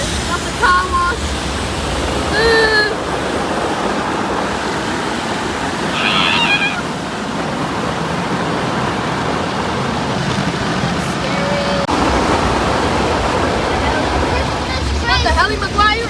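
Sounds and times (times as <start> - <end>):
car wash water spray: 0.0 - 16.0.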